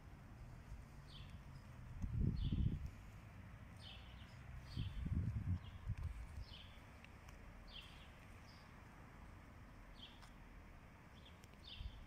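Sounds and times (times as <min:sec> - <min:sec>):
low steady hiss: 0:00.0 - 0:12.0
bird chirping: 0:00.9 - 0:03.0, 0:03.8 - 0:07.0, 0:07.6 - 0:08.8, 0:09.9 - 0:10.4, 0:11.1 - 0:12.0.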